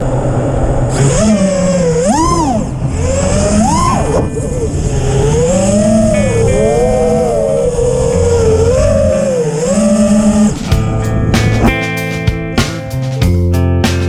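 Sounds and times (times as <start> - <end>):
rc car motor revving: 0.8 - 10.8.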